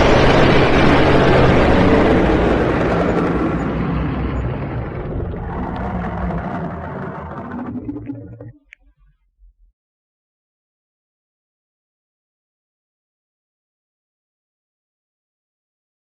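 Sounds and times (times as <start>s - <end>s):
rasping dragon roar: 4.6s - 8.4s.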